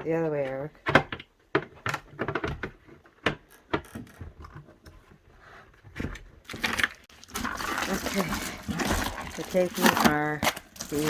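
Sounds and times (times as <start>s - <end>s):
food containers clattering in plastic bin: 6.0s - 11.0s.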